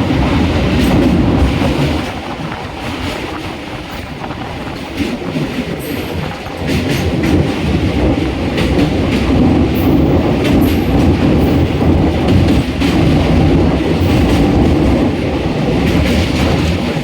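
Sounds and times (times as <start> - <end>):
train rumbling over bridge: 0.0 - 17.0
wheels clattering over rail joints: 0.0 - 17.0.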